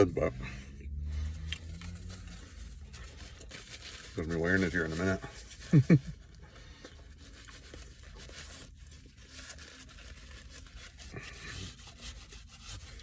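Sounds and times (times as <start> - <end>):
low steady car cabin hum: 0.0 - 9.3
rustling and scraping handling noises: 0.0 - 13.0.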